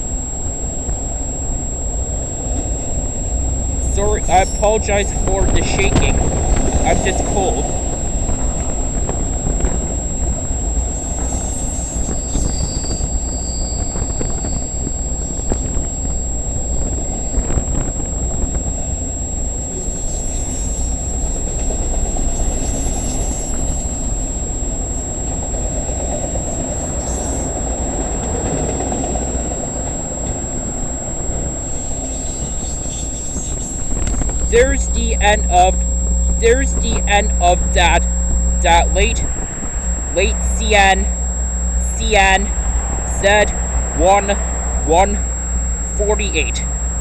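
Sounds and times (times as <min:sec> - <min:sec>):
wind buffeting microphone: 0:05.2 - 0:06.8, 0:07.6 - 0:22.6, 0:23.2 - 0:34.6.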